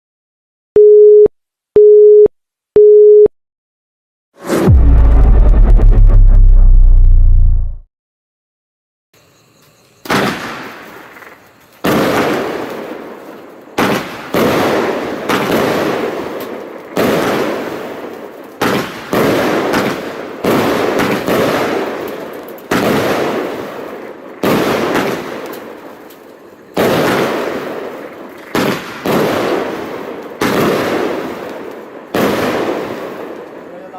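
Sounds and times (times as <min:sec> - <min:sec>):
fireworks battery bangs: 0:10.0 - 0:33.9.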